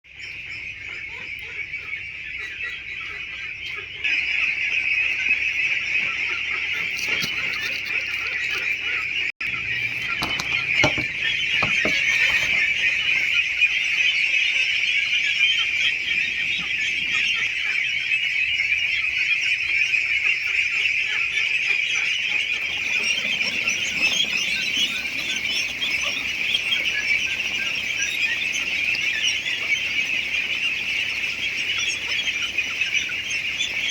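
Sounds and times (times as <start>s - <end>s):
ducklings peeping: 0.1s - 33.9s
knocks: 10.1s - 12.7s.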